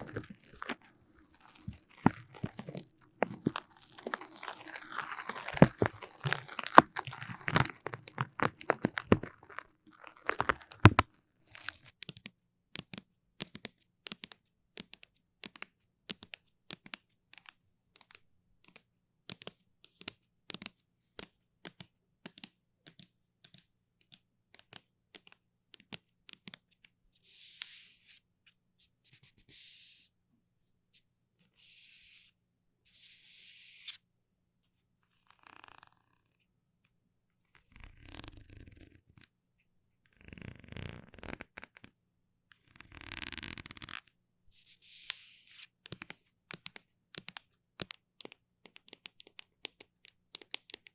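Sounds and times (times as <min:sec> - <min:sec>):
sticky surface crackling and peeling: 0:00.0 - 0:11.9.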